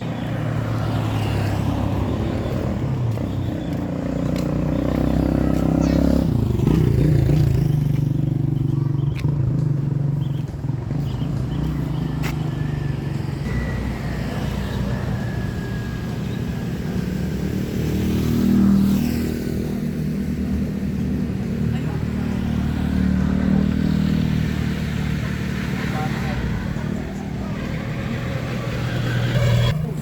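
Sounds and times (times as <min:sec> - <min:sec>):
vehicle engines running: 0:00.0 - 0:30.0
vehicle passing: 0:00.0 - 0:30.0.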